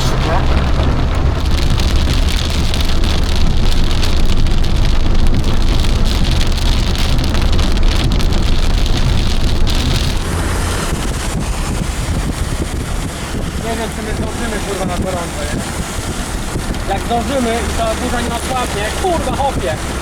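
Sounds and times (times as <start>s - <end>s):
engine and road noise rumble: 0.0s - 20.0s
heavy rain on car roof: 0.0s - 20.0s.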